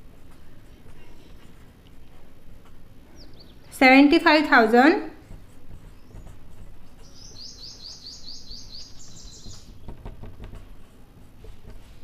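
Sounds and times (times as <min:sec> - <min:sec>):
small bird chirping: 0:03.1 - 0:03.7, 0:05.8 - 0:10.1
marker scratching on whiteboard: 0:05.2 - 0:12.0.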